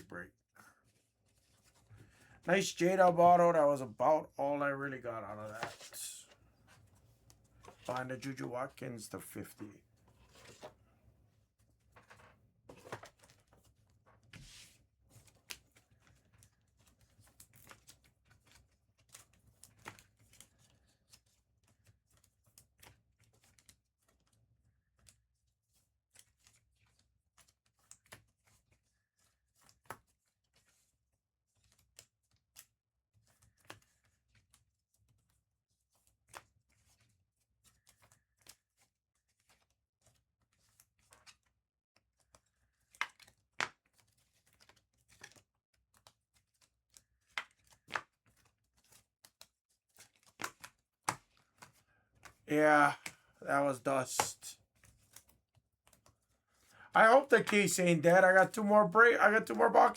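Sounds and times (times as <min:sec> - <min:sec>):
trading cards rustling and clicking: 0:01.4 - 0:06.8, 0:47.3 - 0:55.3, 0:55.9 - 0:59.9.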